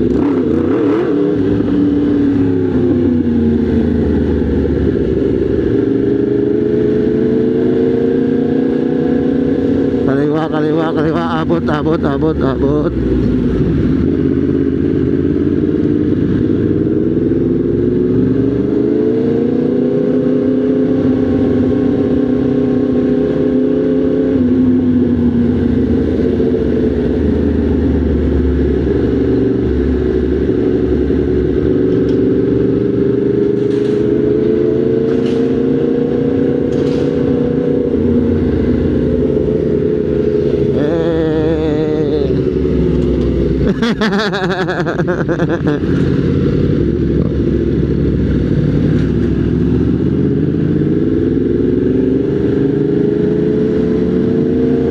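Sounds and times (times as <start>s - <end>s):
motorcycle engine running: 24.7s - 52.8s.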